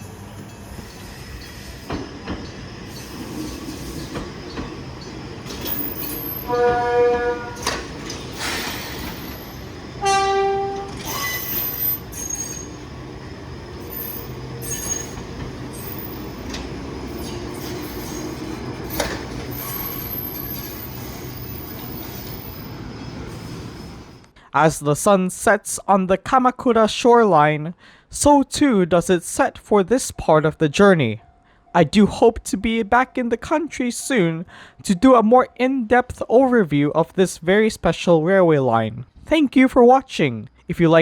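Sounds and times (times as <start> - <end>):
train running past: 0.0 - 24.3
train horn blasts: 6.4 - 7.8, 10.0 - 11.0
wheels clicking on rail: 13.8 - 22.7.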